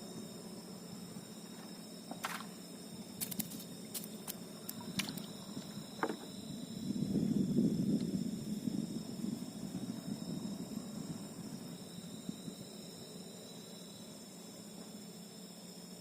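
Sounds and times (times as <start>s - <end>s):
night insects chorus: 0.0s - 16.0s
small splashes: 3.2s - 6.2s.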